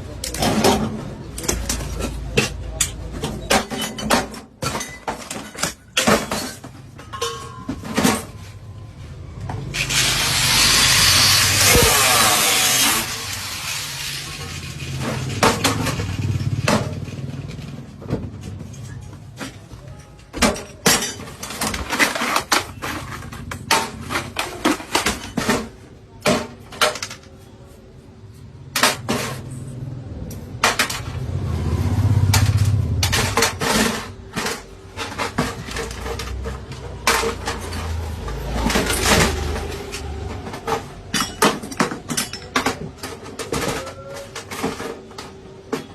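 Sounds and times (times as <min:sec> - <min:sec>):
hard objects clinking: 0:00.0 - 0:08.7, 0:32.1 - 0:45.9.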